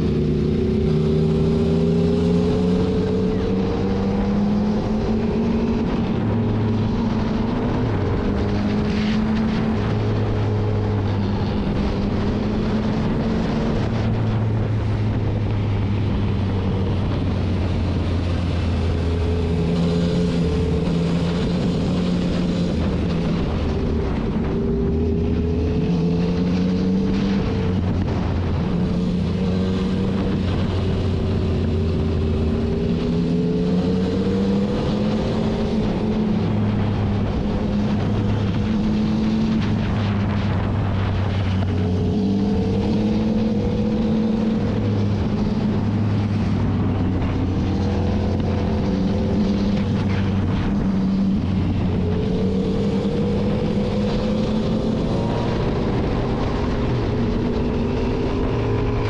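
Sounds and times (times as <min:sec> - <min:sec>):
motorcycle engine accelerating: 0:00.0 - 0:59.0
wind on microphone: 0:00.0 - 0:59.0.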